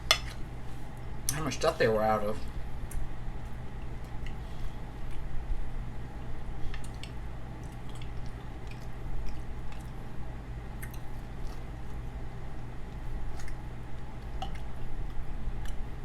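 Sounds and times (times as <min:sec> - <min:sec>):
low steady hum: 0:00.0 - 0:16.0
person chewing food: 0:06.7 - 0:16.0.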